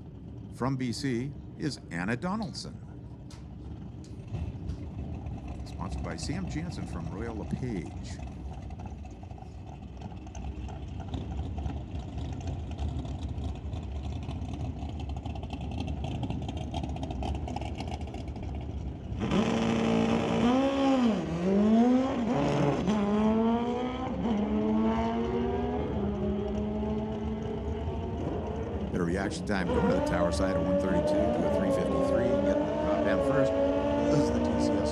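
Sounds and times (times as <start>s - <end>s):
motorcycle engines idling: 0.0s - 19.2s, 28.0s - 34.9s
motorcycles revving through gears: 19.2s - 34.9s.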